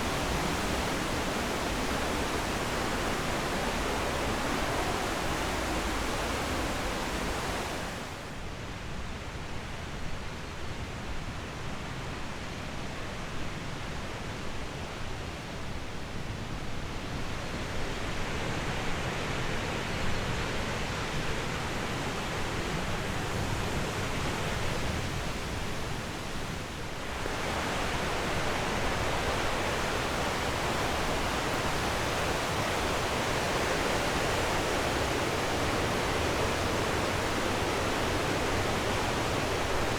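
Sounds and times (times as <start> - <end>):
flowing water rushing: 0.0 - 8.4, 23.4 - 39.9.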